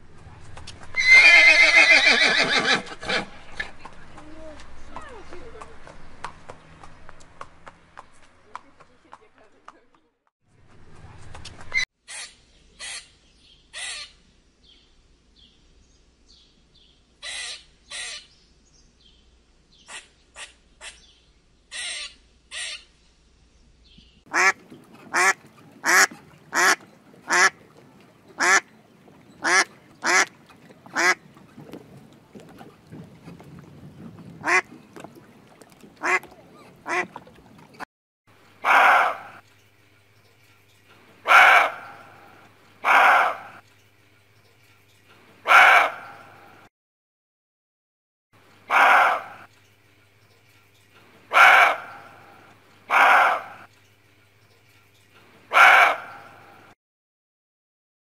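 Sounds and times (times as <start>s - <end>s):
squirrel calling: 11.7s - 14.2s, 17.2s - 18.4s, 19.8s - 22.9s
duck quacking: 24.3s - 27.6s, 28.4s - 28.7s, 29.4s - 30.3s, 30.9s - 31.2s, 34.4s - 34.7s, 36.0s - 37.2s
long loud animal calls: 38.6s - 39.4s, 41.2s - 43.6s, 45.4s - 46.3s, 48.7s - 49.5s, 51.3s - 53.7s, 55.5s - 56.5s.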